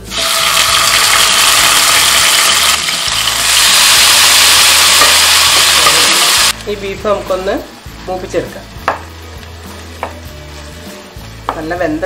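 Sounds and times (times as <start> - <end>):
meat sizzling in hot oil: 0.0 - 6.6.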